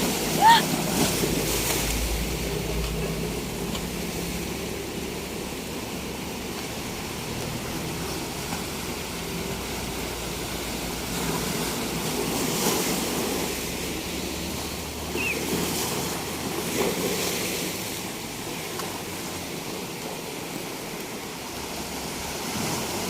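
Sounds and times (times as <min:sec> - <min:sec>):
sea waves breaking on beach: 0:00.0 - 0:23.0.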